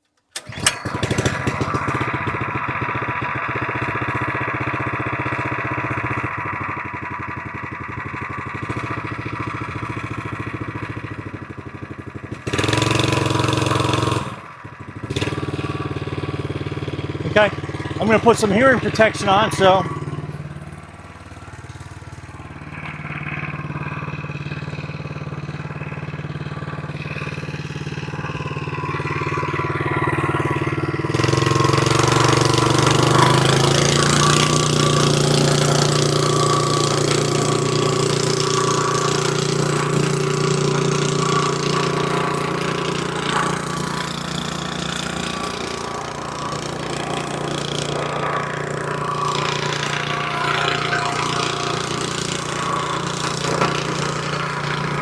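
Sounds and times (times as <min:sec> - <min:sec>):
plate compactor engine running: 0:00.0 - 0:55.0
vibrating plate on stone: 0:26.9 - 0:55.0.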